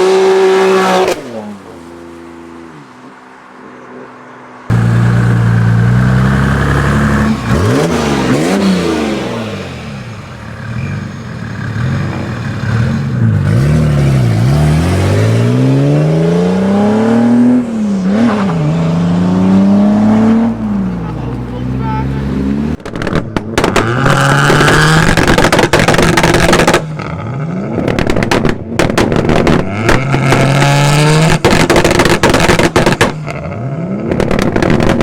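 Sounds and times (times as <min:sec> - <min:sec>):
car engine revving hard: 0:04.7 - 0:11.1, 0:11.7 - 0:22.8, 0:23.6 - 0:28.3, 0:29.2 - 0:34.9.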